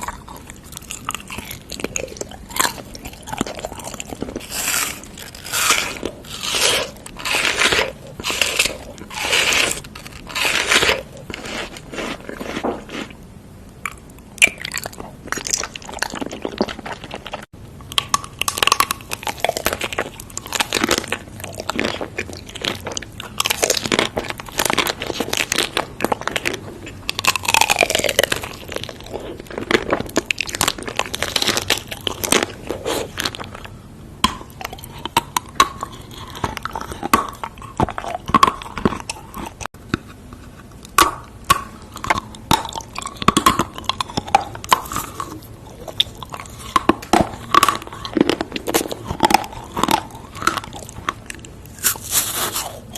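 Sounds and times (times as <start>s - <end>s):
crunchy food being chewed: 0.0s - 13.2s, 13.8s - 52.9s.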